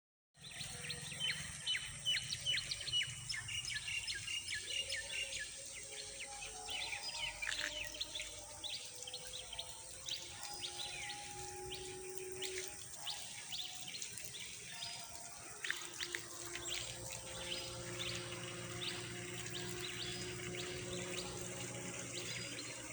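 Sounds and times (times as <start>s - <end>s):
birds chirping: 0.4s - 22.9s
high-pitched insect drone: 0.4s - 22.9s
low hum: 9.0s - 22.9s.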